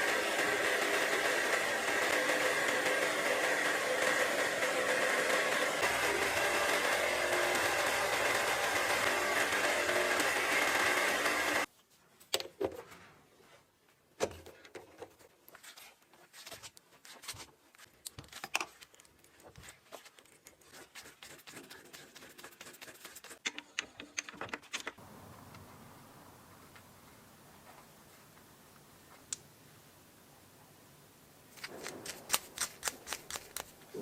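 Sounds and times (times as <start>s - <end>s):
loud power tool: 0.0s - 11.7s.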